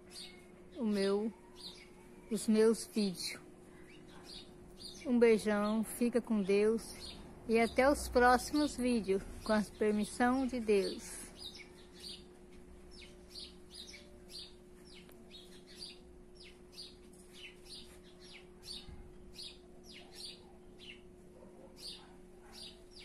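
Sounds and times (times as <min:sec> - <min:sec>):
faint steady hum: 0:00.0 - 0:23.0
small birds chirping: 0:00.0 - 0:23.0.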